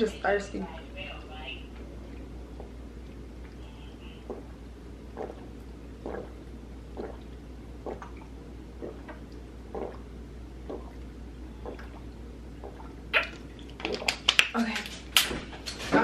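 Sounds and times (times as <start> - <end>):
person gulping a drink: 1.8 - 14.5.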